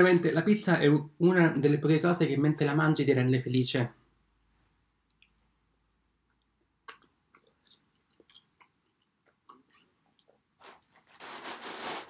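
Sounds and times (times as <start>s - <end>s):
wet chewing clicks and smacks: 4.4s - 5.6s, 6.3s - 10.4s.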